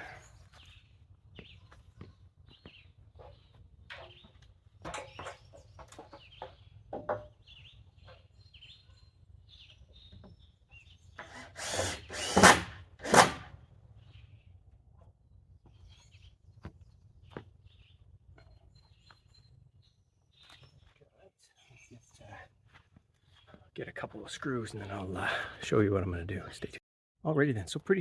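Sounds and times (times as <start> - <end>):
birds chirping: 0.0 - 12.4, 15.7 - 22.6
knocks and clatter on wood: 3.9 - 7.4
power drill running: 11.2 - 13.5.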